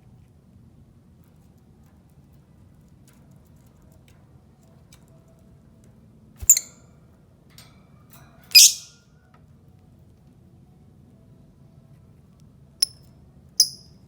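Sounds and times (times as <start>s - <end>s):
lovebird calls: 6.4s - 6.7s, 8.6s - 8.9s, 13.6s - 13.8s.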